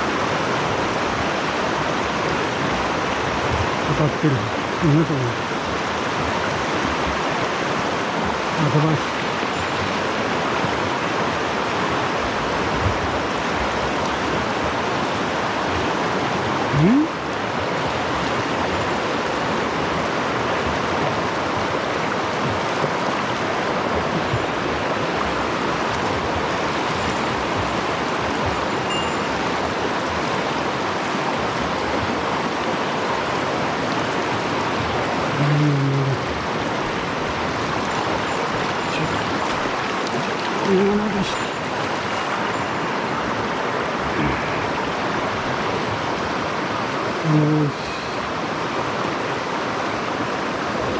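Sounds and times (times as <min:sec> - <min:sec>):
mountain stream rushing: 0:00.0 - 0:50.9.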